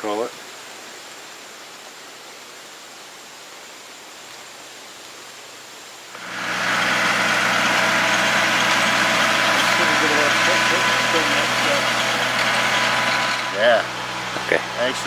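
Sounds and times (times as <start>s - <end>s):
faint steady hiss: 0.0s - 6.3s, 13.4s - 15.0s
vehicle engine running: 6.2s - 15.0s.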